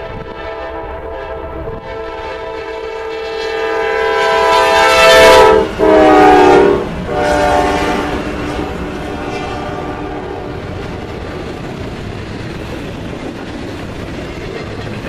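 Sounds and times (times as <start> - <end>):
locomotive air horn blowing: 0.0 - 10.6.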